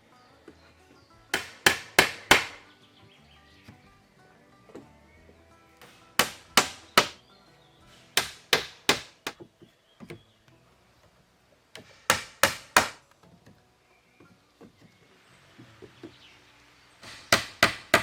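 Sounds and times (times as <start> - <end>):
faint background music: 0.0 - 18.0
axe chopping wood: 1.3 - 2.7, 5.8 - 7.2, 8.0 - 10.2, 11.8 - 13.0, 17.0 - 18.0.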